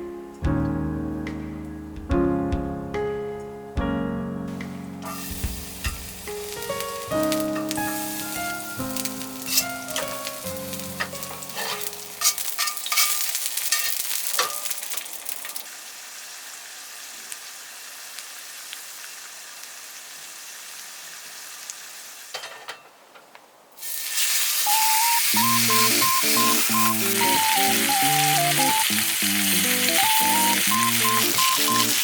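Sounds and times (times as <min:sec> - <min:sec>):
meat sizzling in a pan: 0:05.0 - 0:22.4, 0:23.8 - 0:32.0.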